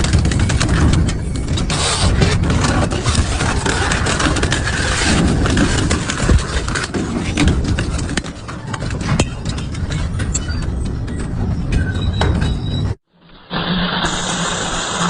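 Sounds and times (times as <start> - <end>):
sharp cracks and knocks: 0.0 - 10.2
shredder rumbling: 0.0 - 12.1.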